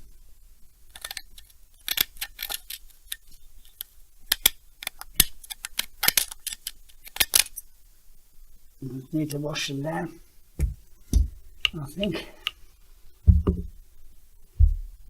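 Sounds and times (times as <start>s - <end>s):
small metal parts clicking: 0.9s - 7.6s.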